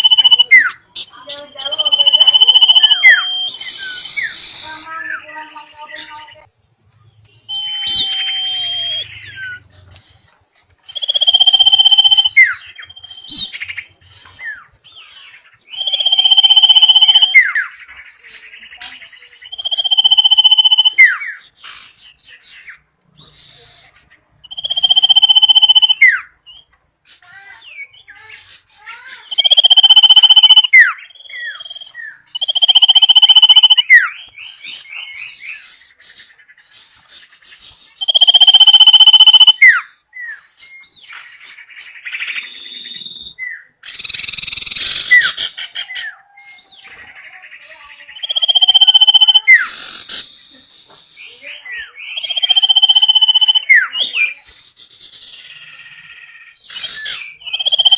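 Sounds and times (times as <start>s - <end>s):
bird whistling notes: 0.0s - 0.8s, 1.6s - 5.2s, 7.5s - 9.7s, 10.9s - 13.7s, 15.7s - 17.7s, 19.5s - 21.3s, 24.4s - 26.2s, 29.3s - 34.2s, 38.0s - 39.8s, 48.2s - 49.7s, 52.0s - 54.3s, 56.7s - 57.9s
soft bird chirps: 0.0s - 57.9s.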